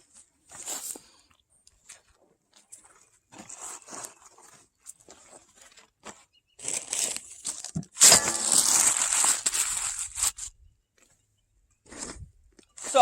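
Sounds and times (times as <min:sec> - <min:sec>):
plastic packaging rustling: 0:06.6 - 0:10.5.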